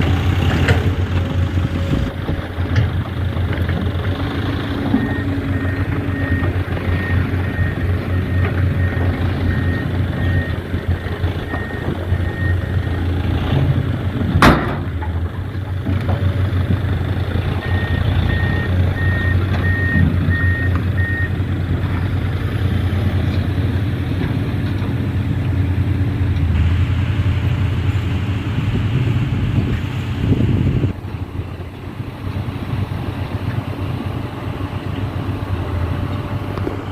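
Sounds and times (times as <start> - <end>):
diesel truck engine running: 0.0 - 36.9
reversing beeper: 4.9 - 12.9, 17.6 - 21.4.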